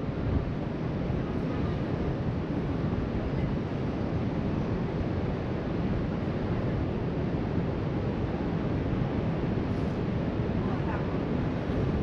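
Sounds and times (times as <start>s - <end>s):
wind noise on microphone: 0.0s - 12.0s.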